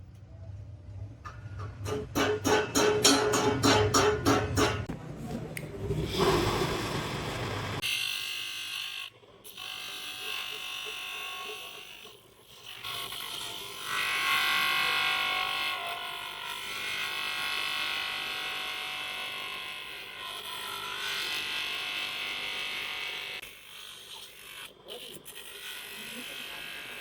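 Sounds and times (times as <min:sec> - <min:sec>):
small electric motor tool whining: 0:05.8 - 0:27.0.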